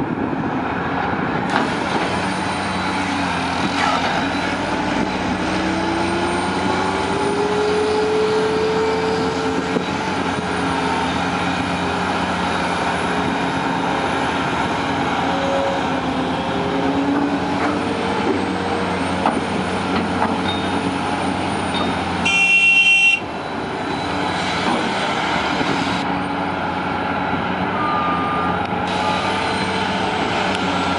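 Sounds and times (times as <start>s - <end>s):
excavator diesel engine running: 0.1s - 30.9s
hydraulics whining: 1.3s - 30.9s
horn blast: 22.2s - 23.2s.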